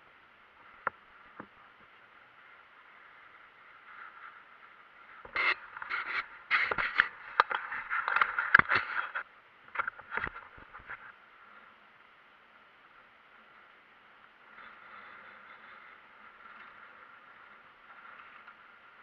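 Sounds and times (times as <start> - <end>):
scraping and crackling: 3.2 - 11.2.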